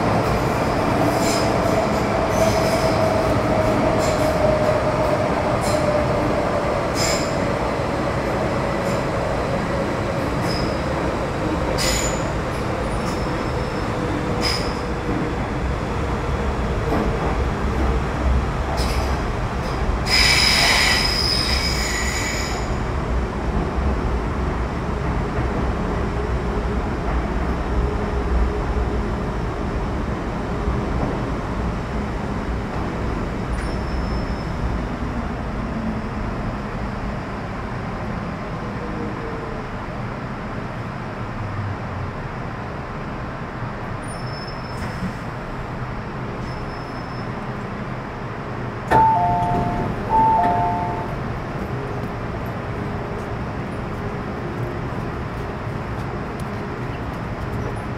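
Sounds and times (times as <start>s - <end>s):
train rumble from inside: 0.0s - 57.9s
wheel squeals: 33.6s - 34.6s.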